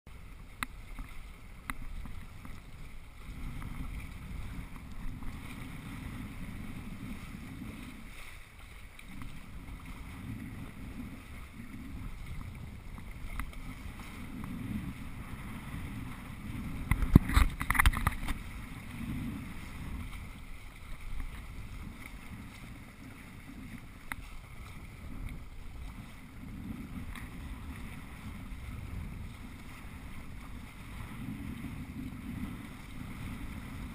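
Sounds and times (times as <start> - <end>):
water rushing along hulls: 0.1 - 33.9
wind buffeting microphone: 0.2 - 33.9.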